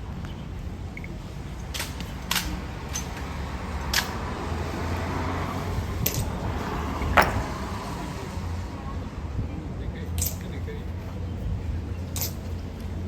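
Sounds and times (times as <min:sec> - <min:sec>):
sharp short clicks: 0:01.0 - 0:04.3.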